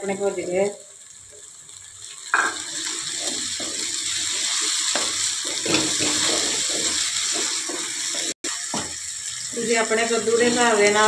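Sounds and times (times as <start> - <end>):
tomatoes sizzling in hot oil: 0.0 - 11.0
wooden spatula scraping a pan: 2.9 - 8.4.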